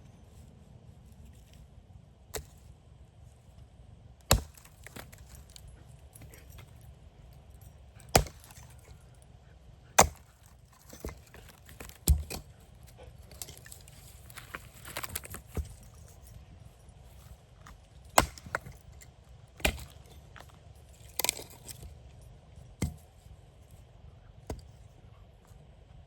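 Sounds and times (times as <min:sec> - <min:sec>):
axe chopping wood: 0:04.3 - 0:05.6, 0:08.0 - 0:08.9, 0:10.0 - 0:12.5, 0:18.2 - 0:18.8, 0:19.6 - 0:20.0, 0:22.8 - 0:23.1.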